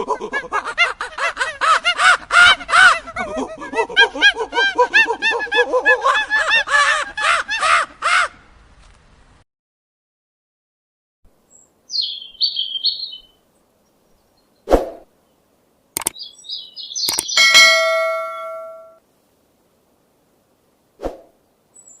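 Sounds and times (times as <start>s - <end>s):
bird chirps: 11.5s - 13.4s, 16.0s - 19.0s
ringing metallic clang: 17.2s - 19.0s.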